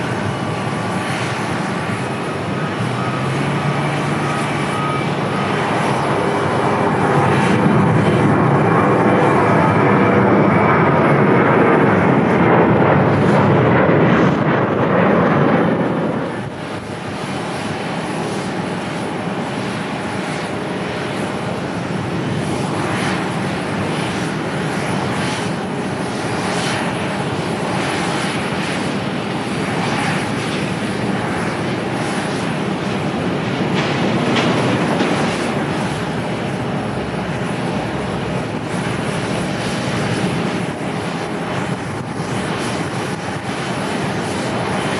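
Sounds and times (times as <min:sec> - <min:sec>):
airliner engines rushing: 0:00.0 - 0:44.9.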